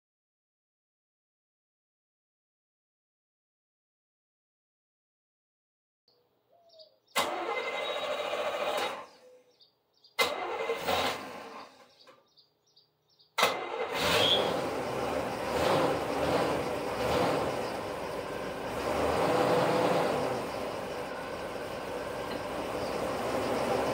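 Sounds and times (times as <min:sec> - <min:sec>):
car engine starting: 0:07.2 - 0:09.2, 0:10.2 - 0:12.1, 0:13.4 - 0:23.9.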